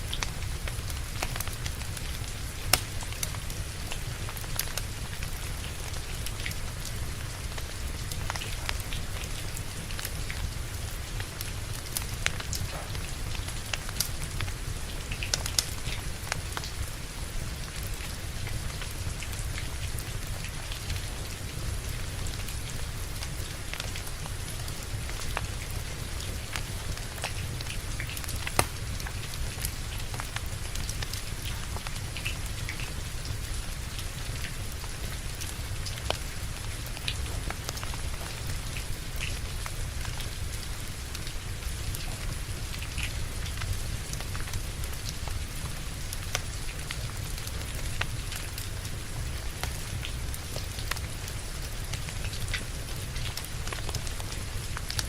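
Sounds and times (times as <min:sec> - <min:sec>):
steady rain falling: 0:00.0 - 0:55.0
wood fire crackling: 0:00.0 - 0:55.0.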